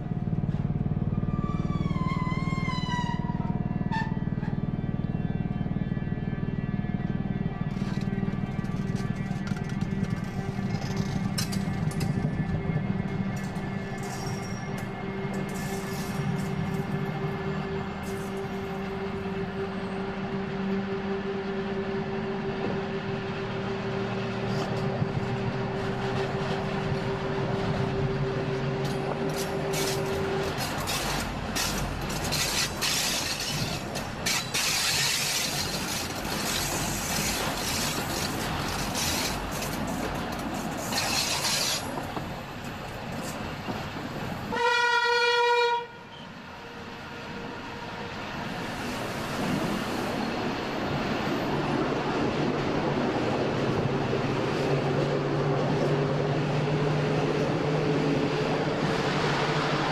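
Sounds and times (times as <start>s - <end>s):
electric train humming: 0.0s - 59.9s
wheels rumbling on rails: 0.0s - 59.9s
train horn: 1.1s - 4.6s, 7.5s - 39.4s, 44.4s - 48.1s.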